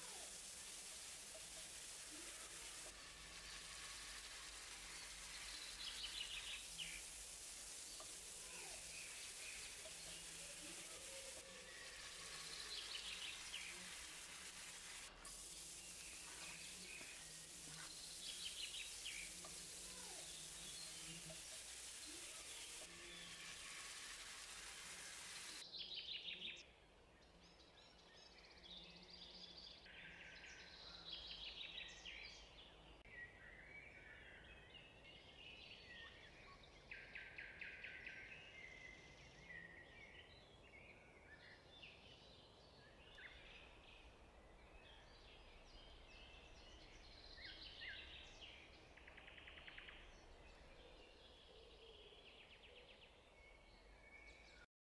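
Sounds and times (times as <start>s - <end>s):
sauce simmering with steady hiss: 0.0s - 25.7s.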